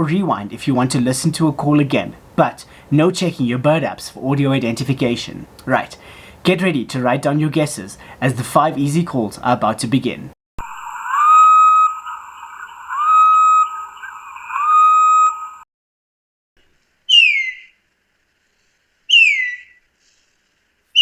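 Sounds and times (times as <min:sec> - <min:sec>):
bird whistles rising: 0:10.8 - 0:15.6, 0:17.1 - 0:17.8, 0:19.1 - 0:19.8
sharp falling bird whistles: 0:11.0 - 0:15.6, 0:17.1 - 0:17.8, 0:19.1 - 0:19.8
light hiss: 0:17.7 - 0:19.1, 0:19.7 - 0:21.0.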